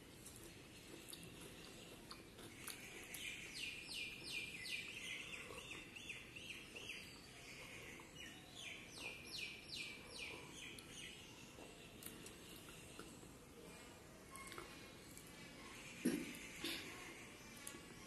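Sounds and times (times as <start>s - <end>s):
bird chirping: 2.8s - 13.0s.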